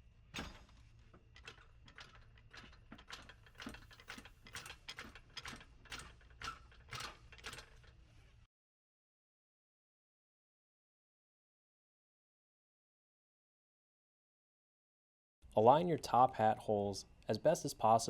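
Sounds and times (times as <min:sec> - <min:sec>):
jack clicking: 0:01.4 - 0:07.9.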